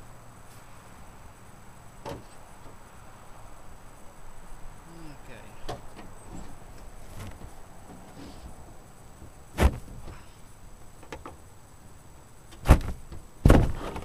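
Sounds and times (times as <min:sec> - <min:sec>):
sharp knocks: 0:12.6 - 0:14.0.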